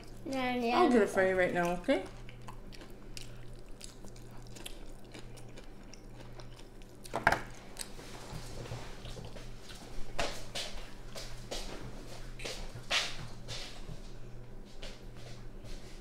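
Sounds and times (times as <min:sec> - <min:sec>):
low steady hum: 0:00.0 - 0:16.0
chewing mouth sounds: 0:01.6 - 0:08.0.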